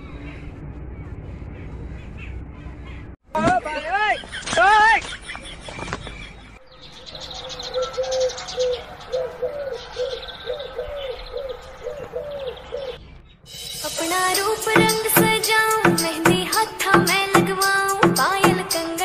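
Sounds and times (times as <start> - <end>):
bird hooting: 6.7 - 13.1
film song with a beat: 13.6 - 19.0.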